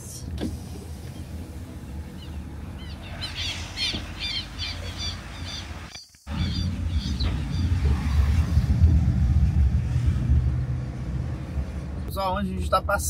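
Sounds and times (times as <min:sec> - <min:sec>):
car driving rumble: 0:00.0 - 0:13.0
birds squawking: 0:02.1 - 0:07.8.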